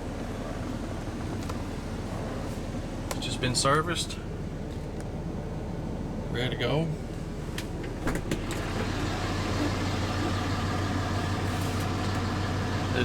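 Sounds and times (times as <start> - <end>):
diesel engine idling: 7.0 - 13.0.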